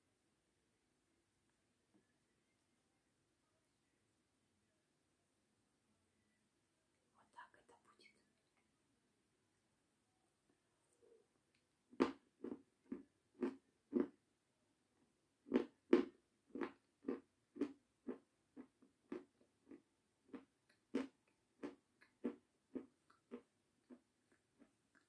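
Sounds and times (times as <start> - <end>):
close-miked chewing: 15.5 - 25.0.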